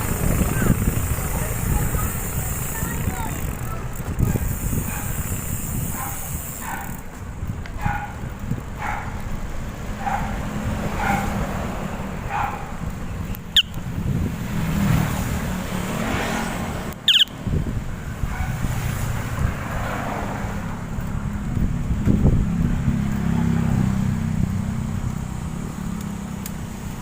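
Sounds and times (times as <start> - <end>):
wind rumble on microphone: 0.0 - 27.0
dog barking: 4.9 - 5.2, 5.9 - 6.9, 7.8 - 8.2, 8.8 - 9.2, 10.0 - 10.4, 11.0 - 11.4, 12.3 - 12.8, 18.3 - 18.6
short high squeaks: 17.0 - 17.4.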